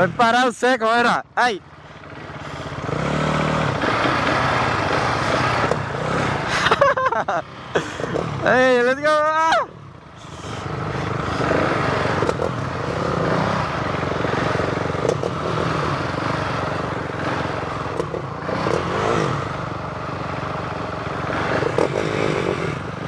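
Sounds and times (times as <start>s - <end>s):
motorcycle engines at low revs: 0.0s - 23.0s
sharp clicks and clatter: 3.7s - 6.9s, 12.1s - 13.2s, 14.9s - 15.8s, 17.8s - 19.0s.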